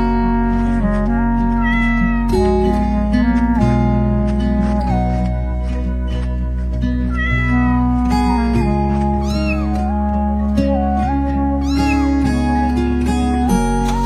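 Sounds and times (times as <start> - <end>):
background music with plucked guitar: 0.0 - 14.0
cat meowing: 1.5 - 2.4, 7.1 - 8.0, 9.2 - 9.9, 11.6 - 12.3.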